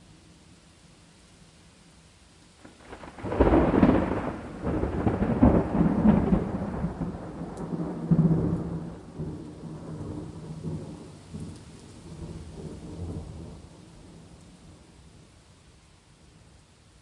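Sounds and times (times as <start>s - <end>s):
rain: 0.0s - 17.0s
thunder rolling: 2.6s - 13.6s.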